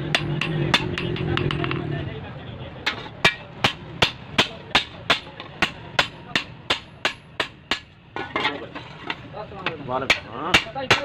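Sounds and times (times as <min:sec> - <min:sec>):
hammer striking metal blade on anvil: 0:00.0 - 0:01.7.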